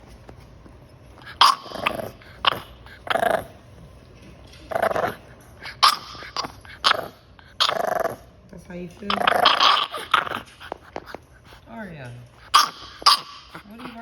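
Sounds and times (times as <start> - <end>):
puppy barking in raspy yaps: 5.8 - 7.8, 12.5 - 13.6.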